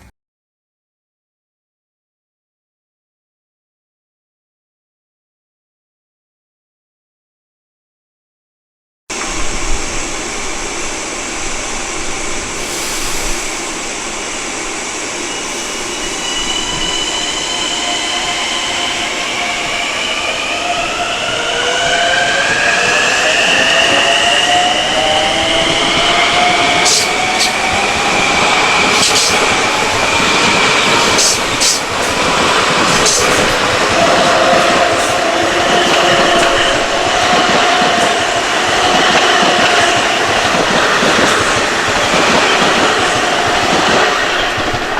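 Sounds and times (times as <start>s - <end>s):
train passing: 9.1s - 44.9s
train wheels clicking: 15.2s - 44.9s.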